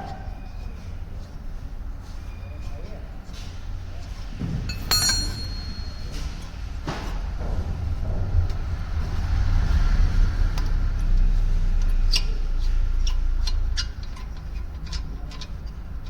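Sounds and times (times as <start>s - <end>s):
hand tools clinking on metal: 4.5s - 6.6s
low rumble: 7.2s - 12.1s.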